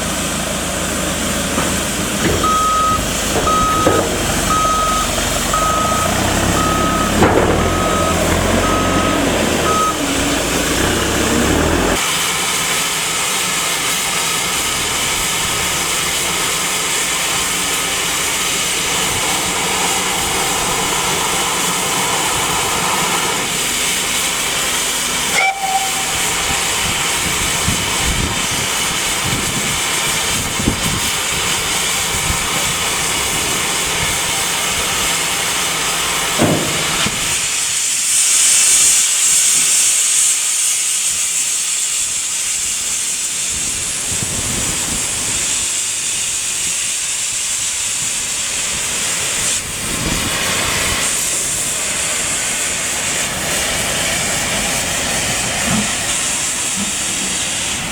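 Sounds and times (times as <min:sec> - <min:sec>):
steam locomotive hissing: 0:00.0 - 0:57.9
short tone: 0:02.4 - 0:10.7.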